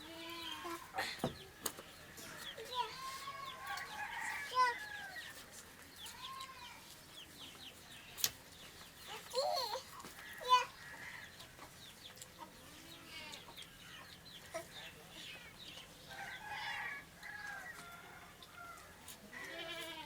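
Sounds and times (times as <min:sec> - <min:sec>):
chickens clucking: 0:05.3 - 0:19.6.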